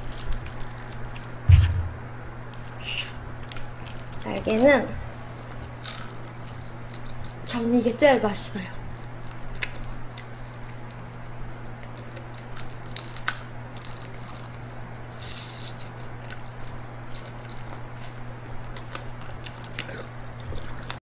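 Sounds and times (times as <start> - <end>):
crunching and chewing food: 0.0 - 1.7, 2.5 - 7.7, 8.8 - 21.0
steady low hum: 0.0 - 11.9.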